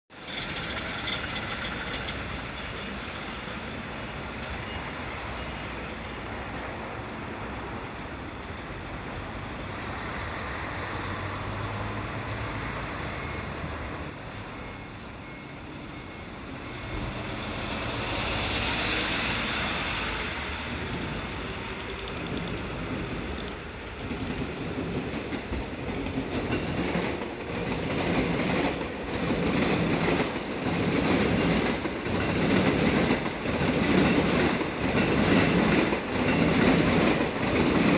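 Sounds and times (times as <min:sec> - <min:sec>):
train rumbling and rattling: 0:00.1 - 0:37.9.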